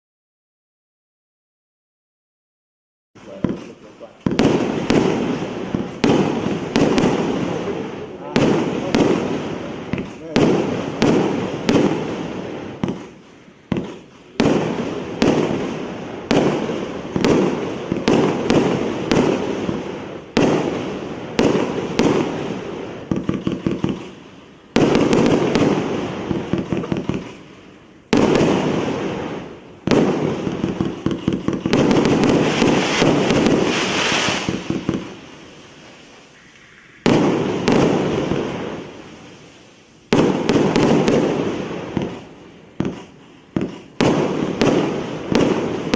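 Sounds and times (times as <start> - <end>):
firework cake shots: 3.2 - 27.4, 28.1 - 35.5, 36.2 - 39.0, 40.1 - 45.9.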